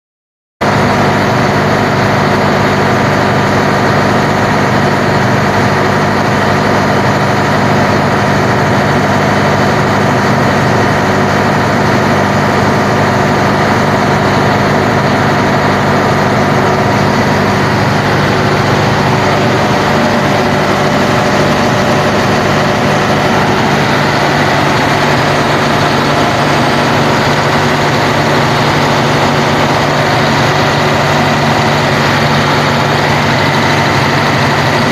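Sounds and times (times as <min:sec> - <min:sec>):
engine idling: 0:00.6 - 0:34.9.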